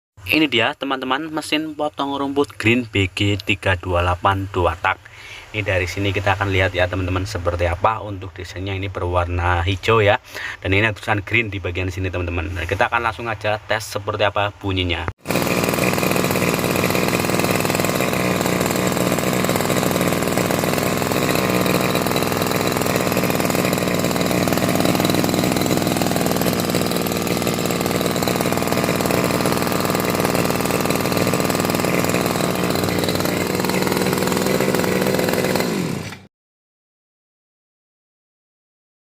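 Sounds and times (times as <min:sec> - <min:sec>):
brush cutter engine running: 0:15.2 - 0:36.3.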